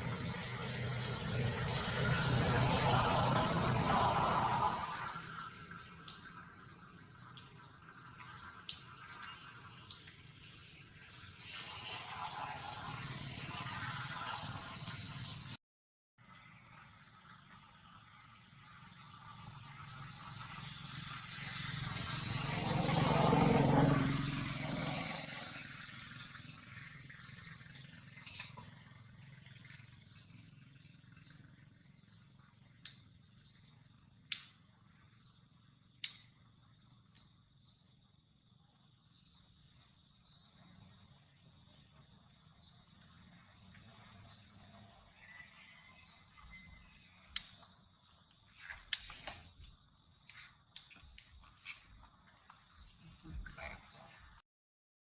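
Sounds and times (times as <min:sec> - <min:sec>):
high-pitched insect drone: 0:00.0 - 0:15.5, 0:16.2 - 0:54.4
sharp clicks: 0:34.3 - 0:34.6, 0:36.0 - 0:36.4.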